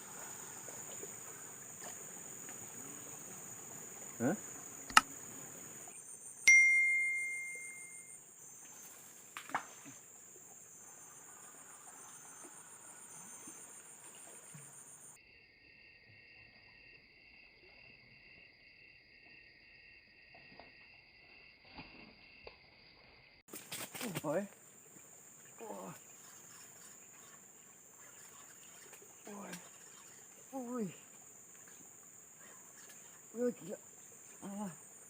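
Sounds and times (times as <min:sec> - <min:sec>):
insects chirring: 0:00.0 - 0:35.0
sharp ding: 0:06.5 - 0:08.1.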